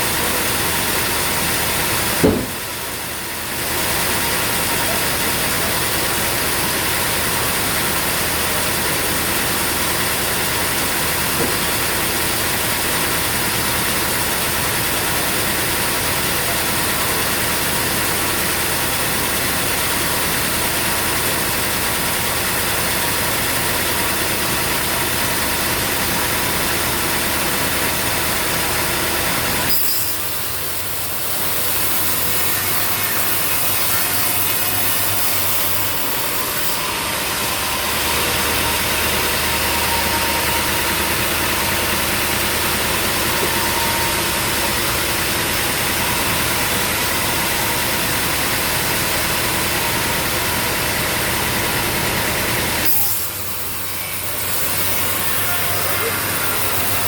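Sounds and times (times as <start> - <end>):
sawmill engine running: 0.0 - 57.0
sharp knock: 2.2 - 2.7.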